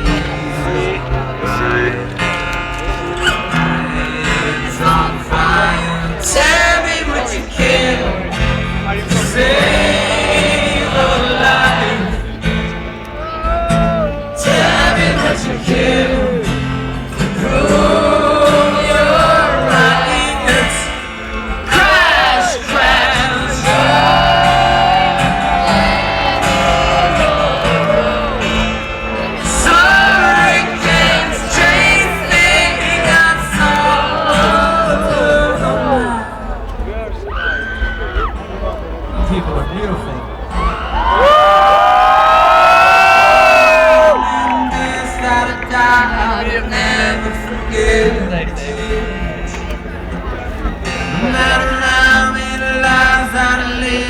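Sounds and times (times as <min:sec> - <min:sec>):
strummed acoustic guitar: 0:00.0 - 0:40.9, 0:42.9 - 0:54.0
person singing: 0:13.4 - 0:36.5.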